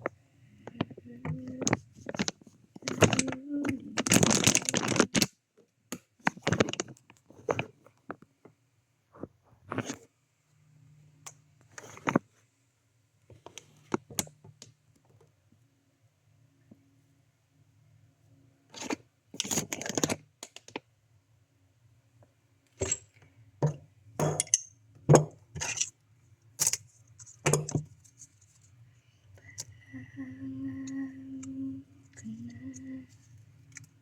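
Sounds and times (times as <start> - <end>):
hands handling objects: 0.0 - 8.3
faint low hum: 26.1 - 34.0.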